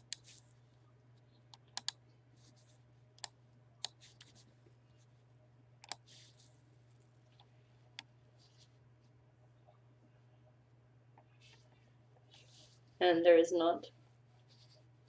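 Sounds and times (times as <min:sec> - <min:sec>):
low electrical hum: 0:00.0 - 0:15.0
mouse and keyboard clicks: 0:01.5 - 0:02.0, 0:05.8 - 0:06.1.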